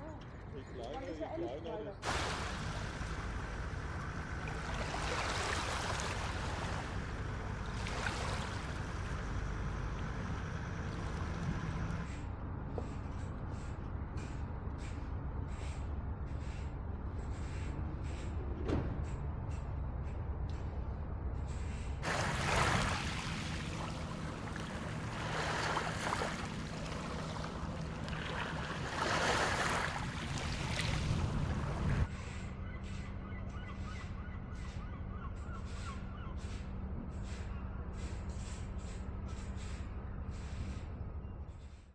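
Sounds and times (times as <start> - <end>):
water at the shore: 0.0 - 41.0
wind: 0.0 - 41.9
waves washing onto shore: 2.0 - 12.0, 22.0 - 32.1.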